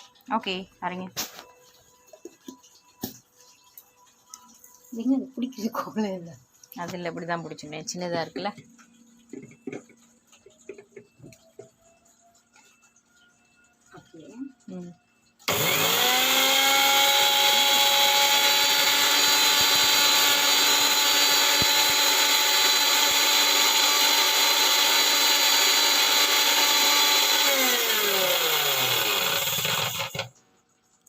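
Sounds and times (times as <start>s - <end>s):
mixer grinder motor whining: 15.4s - 30.3s.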